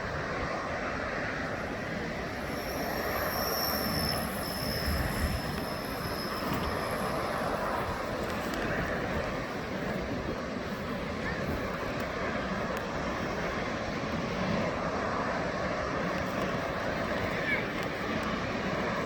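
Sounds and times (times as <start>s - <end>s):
high-pitched whine: 0.0s - 10.3s
jet engines roaring: 0.0s - 19.0s
wind buffeting microphone: 0.0s - 19.0s.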